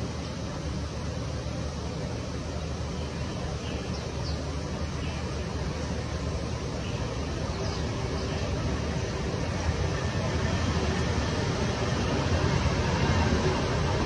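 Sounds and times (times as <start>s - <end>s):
low outdoor background noise: 0.0s - 14.0s
faint bird chirps: 3.0s - 5.4s.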